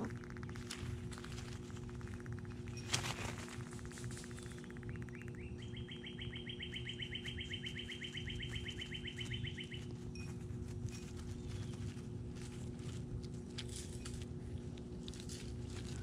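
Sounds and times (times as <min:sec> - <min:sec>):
steady low hum: 0:00.0 - 0:16.0
songbird trilling: 0:04.2 - 0:10.3.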